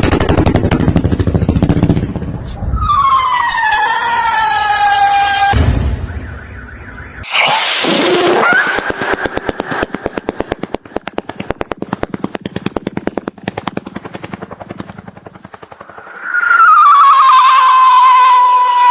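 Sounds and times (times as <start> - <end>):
firecrackers popping: 7.2 - 13.8
loud wavering whistle: 16.1 - 18.9.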